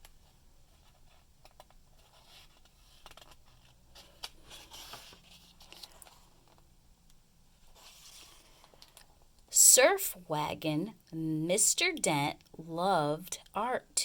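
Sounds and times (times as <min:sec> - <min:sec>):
faint scratching and rustling: 0:00.1 - 0:06.7, 0:07.5 - 0:09.2.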